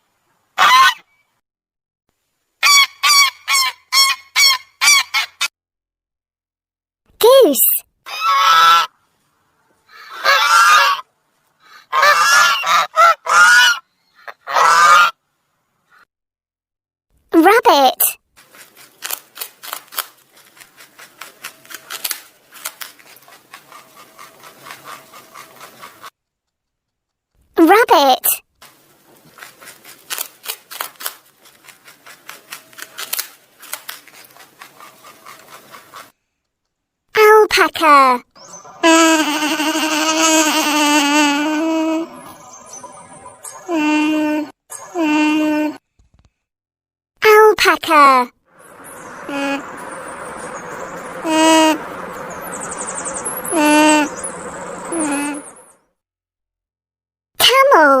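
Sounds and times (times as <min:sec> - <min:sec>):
goose honking: 0:08.1 - 0:08.9, 0:10.1 - 0:11.0, 0:11.9 - 0:15.2
rabbit chewing crunchy food: 0:18.4 - 0:26.0, 0:28.6 - 0:36.1.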